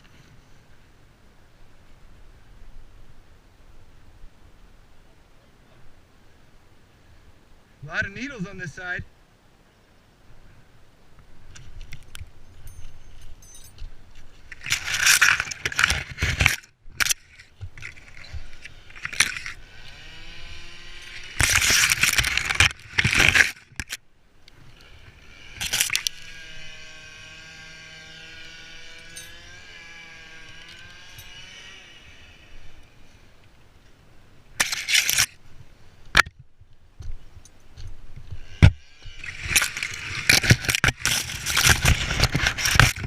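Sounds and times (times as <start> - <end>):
branches crackling and breaking: 14.4 - 24.0, 39.1 - 43.0
steady motor hum: 18.3 - 21.7, 24.7 - 33.0.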